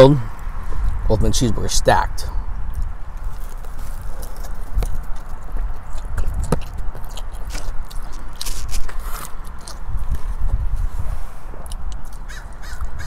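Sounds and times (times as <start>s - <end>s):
burger being chewed: 2.7s - 13.0s.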